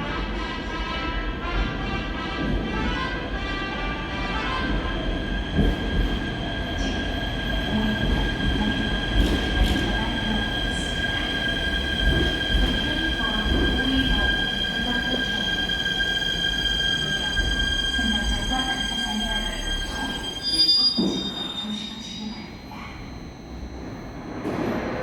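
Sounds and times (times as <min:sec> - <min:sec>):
train low rumble: 0:00.0 - 0:25.0
electric train wheels squealing: 0:05.7 - 0:25.0.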